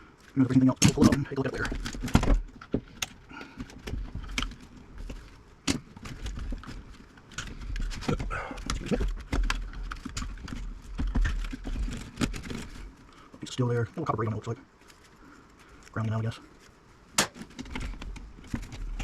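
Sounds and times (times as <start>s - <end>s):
metal parts clicking and rattling: 0.2s - 13.0s, 17.4s - 19.0s.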